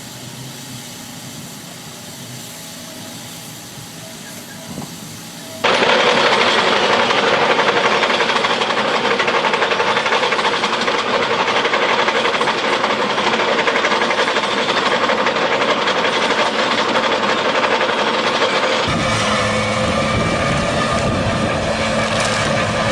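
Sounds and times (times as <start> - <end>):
heavy machine rattling: 5.6 - 22.9.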